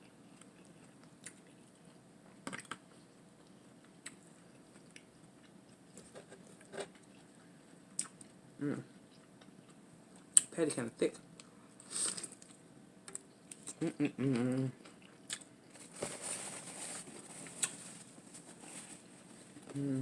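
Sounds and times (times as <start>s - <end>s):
lettuce crunching and chewing: 7.9s - 8.4s, 11.4s - 19.8s.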